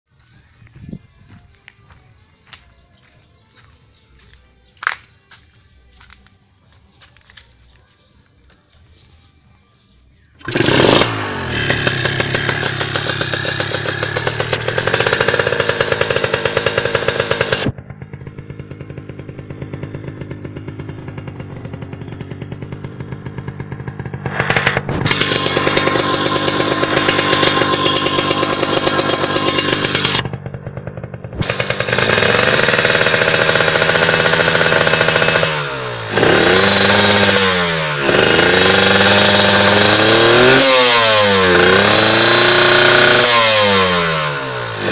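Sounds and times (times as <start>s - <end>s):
motorcycle engine revving: 9.8s - 44.9s.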